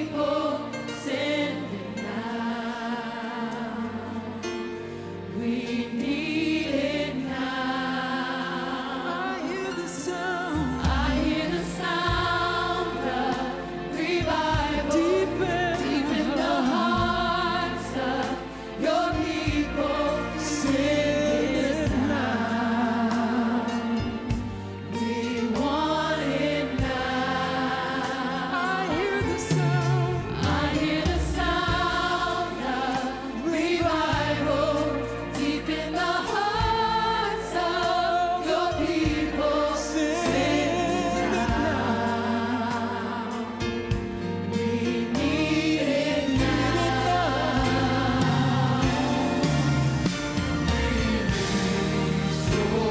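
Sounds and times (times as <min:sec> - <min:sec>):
church choir singing gospel: 0:00.0 - 0:52.9.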